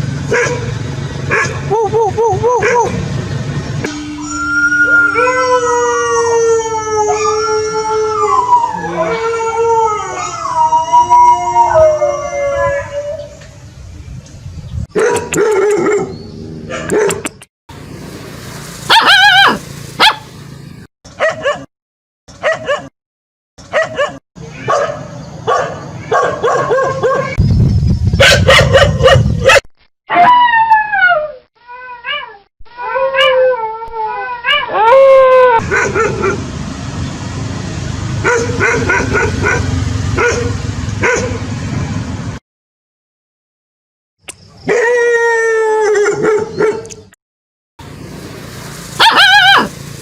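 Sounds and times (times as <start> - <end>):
dog barking: 0.3 - 0.7, 1.3 - 1.6, 2.6 - 3.0, 15.0 - 17.3, 18.9 - 20.3, 21.1 - 21.7, 22.4 - 22.9, 23.7 - 27.4, 28.2 - 30.3, 35.6 - 36.4, 38.2 - 41.4, 46.1 - 46.9, 49.0 - 49.7
dog howling: 4.2 - 13.4, 18.9 - 20.2, 30.1 - 36.4, 49.0 - 49.7.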